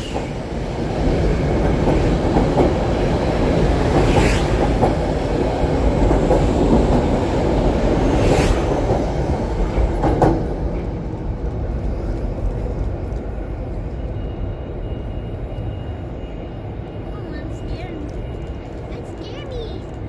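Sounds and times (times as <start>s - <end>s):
train wheel clacks: 0.0s - 13.4s
train rumbling past: 0.0s - 20.0s.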